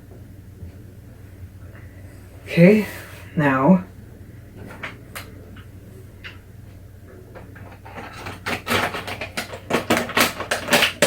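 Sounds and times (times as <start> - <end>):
ice cubes rattling in plastic toy: 7.9 - 11.0.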